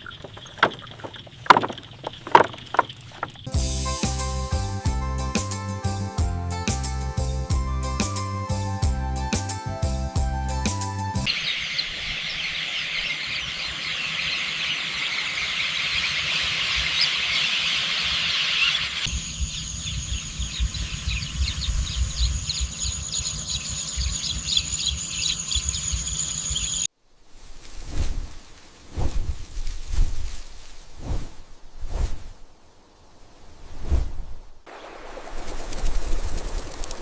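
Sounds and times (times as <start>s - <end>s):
music: 3.5s - 11.3s
insects buzzing high-pitched: 11.2s - 26.9s.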